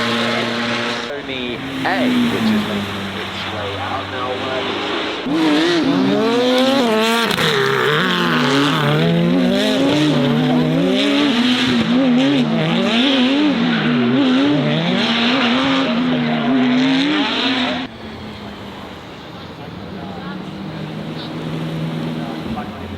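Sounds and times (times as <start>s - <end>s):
tyres squealing: 0.0s - 11.4s
car engine revving: 0.0s - 22.9s.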